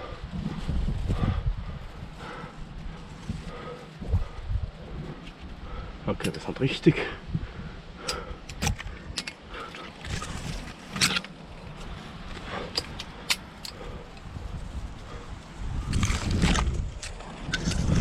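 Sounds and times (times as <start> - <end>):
climbing gear clinking on rock: 8.0 - 14.3.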